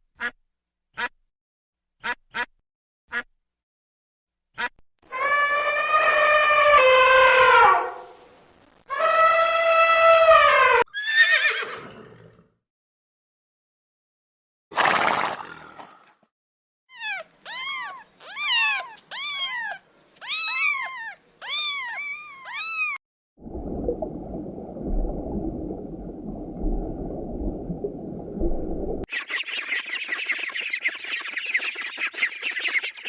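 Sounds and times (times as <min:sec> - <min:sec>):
rising and falling animal calls: 0:16.9 - 0:23.0
short noisy animal call: 0:16.9 - 0:23.0.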